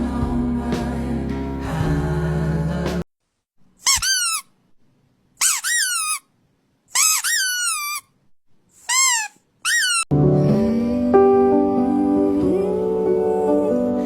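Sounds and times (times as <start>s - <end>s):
music: 0.0s - 3.0s, 10.1s - 14.0s
puppy whining: 8.9s - 10.1s.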